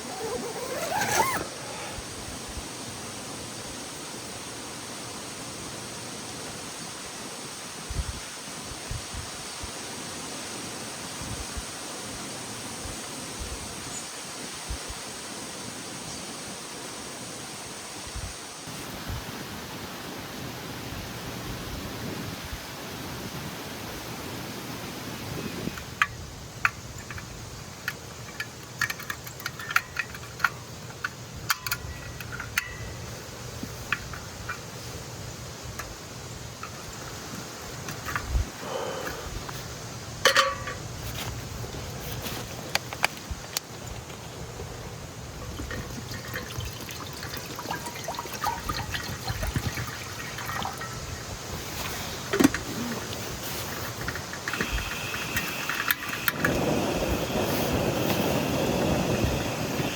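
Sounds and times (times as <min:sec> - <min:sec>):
steady rushing hiss: 0:00.0 - 0:59.9
metal cookware clinking: 0:40.3 - 0:40.8, 0:45.6 - 0:51.2.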